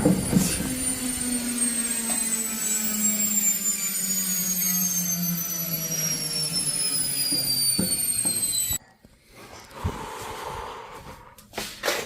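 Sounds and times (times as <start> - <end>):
washing machine spinning down: 0.0 - 8.8.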